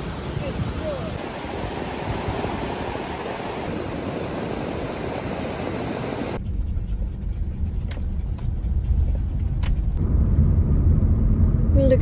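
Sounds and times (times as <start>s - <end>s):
ocean surf rushing: 0.0s - 6.4s.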